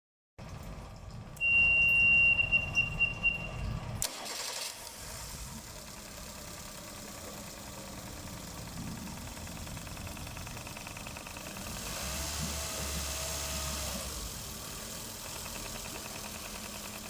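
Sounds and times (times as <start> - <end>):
high warning beep: 1.4 - 3.6
outboard motor cranking and idling: 3.7 - 17.0.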